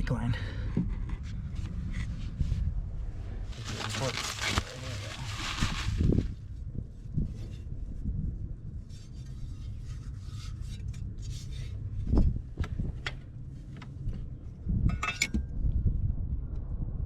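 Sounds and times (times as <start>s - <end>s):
rubbing and scraping car parts: 0.8s - 2.7s, 3.4s - 6.5s, 8.8s - 14.2s.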